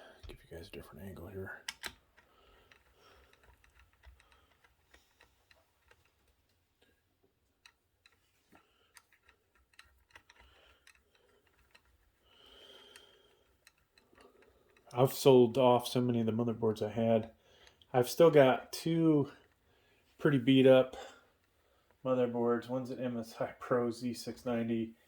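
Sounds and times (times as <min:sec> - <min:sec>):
small clicks and taps: 0:01.6 - 0:15.0, 0:17.3 - 0:17.9.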